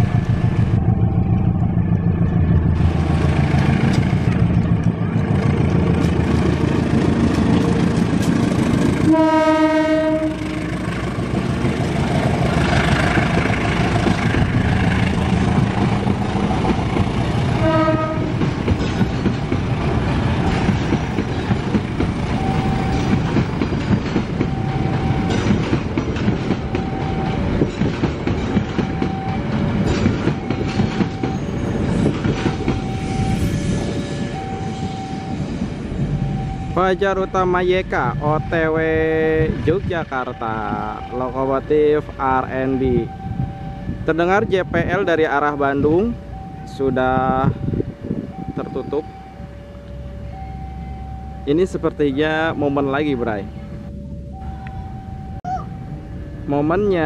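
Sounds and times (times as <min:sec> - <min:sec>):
diesel locomotive engine: 0:00.0 - 0:57.0
coaches clattering over rail joints: 0:02.2 - 0:09.1, 0:10.7 - 0:33.0
train horn: 0:09.0 - 0:10.8, 0:17.6 - 0:18.4
level-crossing warning bell: 0:12.2 - 0:57.0.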